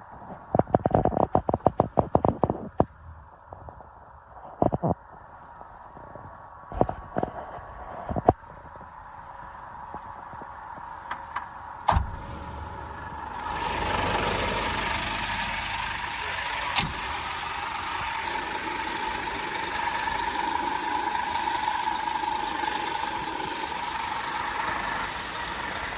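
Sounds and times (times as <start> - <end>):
diesel truck engine running: 11.7 - 25.9
steady whine: 11.9 - 25.9.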